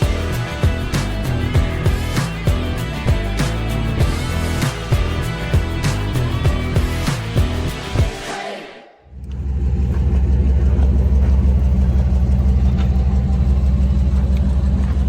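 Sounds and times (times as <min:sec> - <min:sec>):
engine rumbling low: 0:00.0 - 0:08.2, 0:09.1 - 0:15.0
music: 0:00.0 - 0:09.0.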